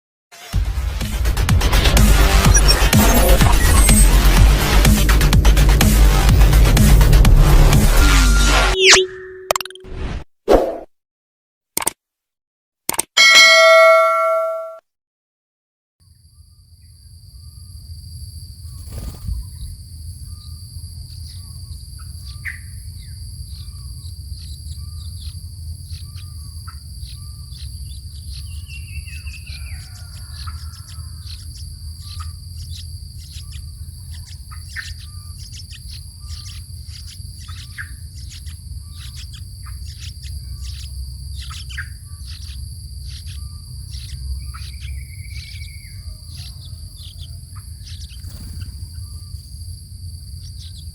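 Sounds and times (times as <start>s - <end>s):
birds chirping: 13.2s - 14.8s, 18.7s - 50.9s
high-pitched insect drone: 18.6s - 50.9s.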